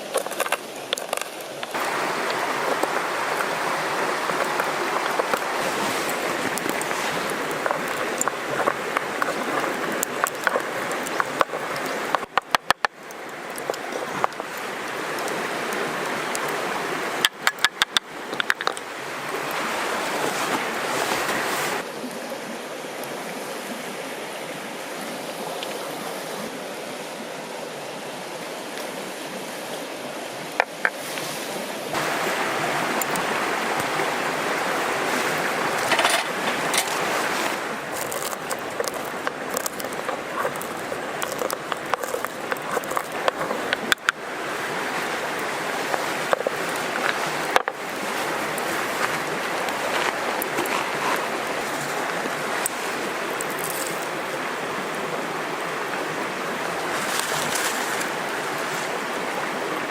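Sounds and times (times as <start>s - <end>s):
river flowing: 0.0s - 59.9s
handling clicks and knocks: 17.2s - 18.8s, 35.8s - 44.2s, 45.8s - 47.8s.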